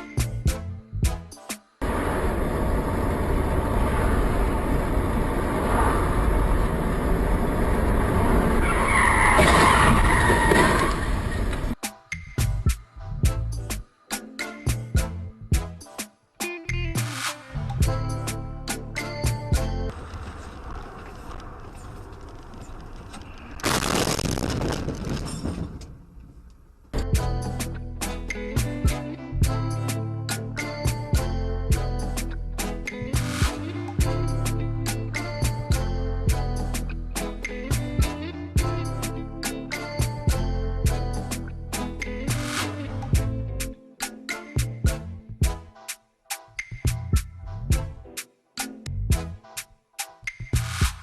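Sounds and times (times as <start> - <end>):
loud burst of noise: 1.8 - 8.6
car engine and road noise: 1.8 - 11.8, 19.5 - 23.9
tyres skidding and squealing: 5.0 - 11.8.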